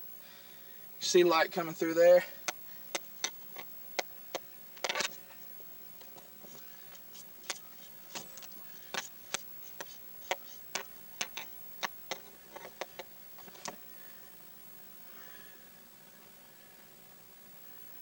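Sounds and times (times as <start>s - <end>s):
sharp clicks and light knocks: 2.4s - 5.4s, 6.0s - 13.8s.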